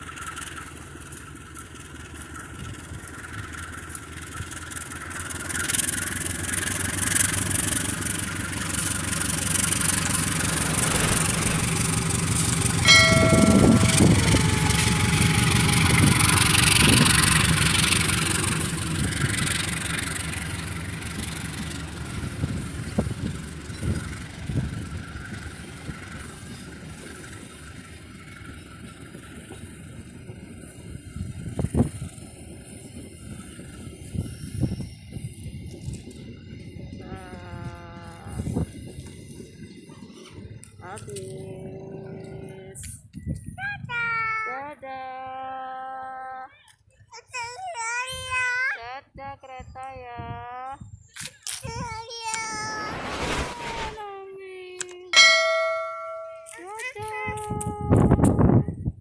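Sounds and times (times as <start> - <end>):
train rumbling and clattering: 0.0 - 46.1, 55.1 - 59.0
train horn toot: 12.9 - 16.7.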